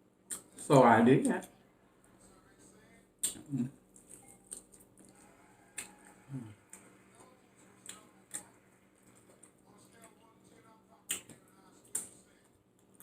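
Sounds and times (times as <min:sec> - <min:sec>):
wet mouth clicks and chewing: 0:03.2 - 0:05.2
person humming mm: 0:03.4 - 0:03.7.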